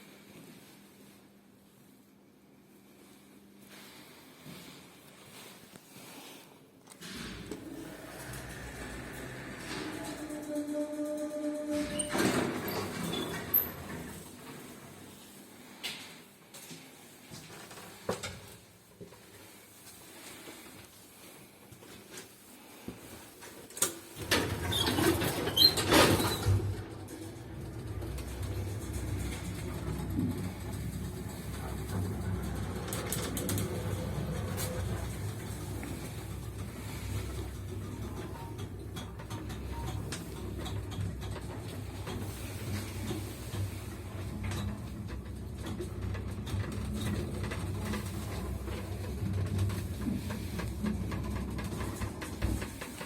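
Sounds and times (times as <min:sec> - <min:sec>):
lift mechanical clattering: 0:07.0 - 0:14.7, 0:24.2 - 0:53.0
lift low hum: 0:26.2 - 0:52.7.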